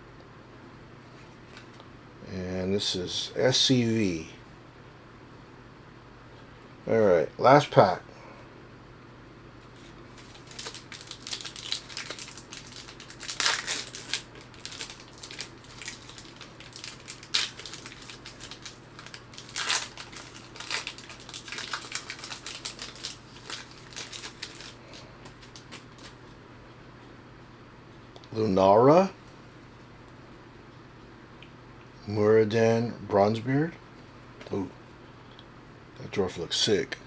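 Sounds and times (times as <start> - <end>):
wrapper tearing and crinkling: 9.8 - 26.2.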